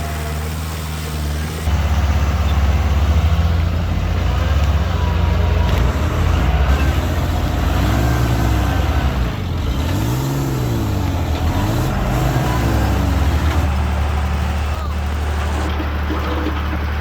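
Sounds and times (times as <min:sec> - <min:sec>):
heavy diesel engine revving: 0:00.0 - 0:17.0.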